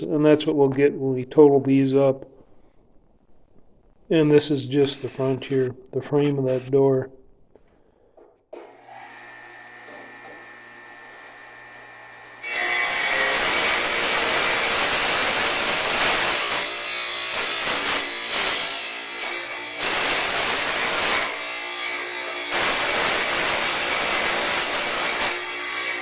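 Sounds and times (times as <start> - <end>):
tile saw cutting brick: 8.6 - 26.0.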